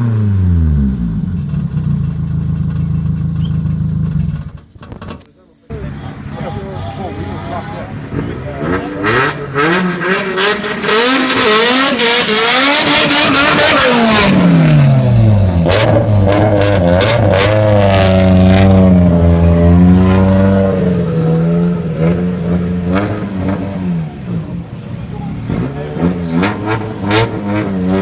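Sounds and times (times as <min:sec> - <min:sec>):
car engine revving: 0:05.7 - 0:28.0.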